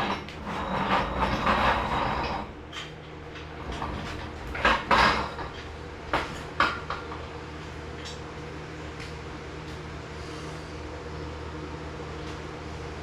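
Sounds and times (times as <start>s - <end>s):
metal tools clanking: 0.0s - 7.2s.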